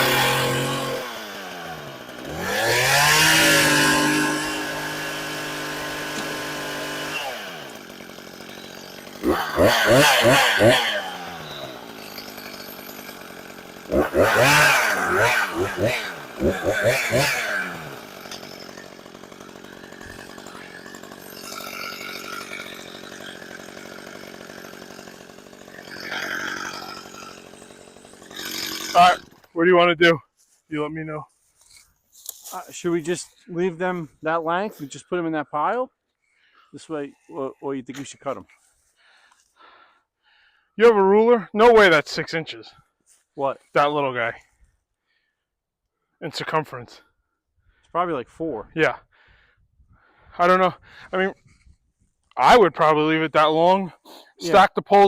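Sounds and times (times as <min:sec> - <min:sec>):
chainsaw engine revving and idling: 0:00.0 - 0:29.6, 0:52.4 - 0:54.9.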